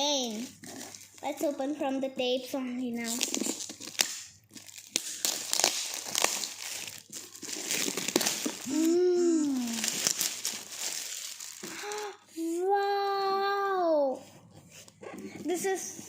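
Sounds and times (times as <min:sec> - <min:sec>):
wrapping paper crinkling and tearing: 0:00.2 - 0:01.5, 0:03.0 - 0:12.2
person humming: 0:08.7 - 0:10.0.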